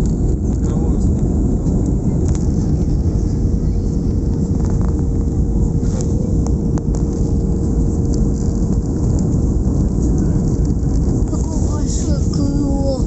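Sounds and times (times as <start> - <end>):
airliner engine roar in cabin: 0.0 - 13.0
constant hum: 0.0 - 13.0.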